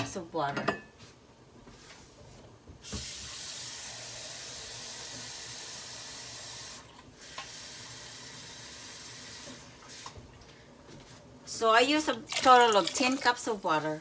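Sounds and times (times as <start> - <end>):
kitchen tap running: 2.8 - 10.2, 12.0 - 13.9.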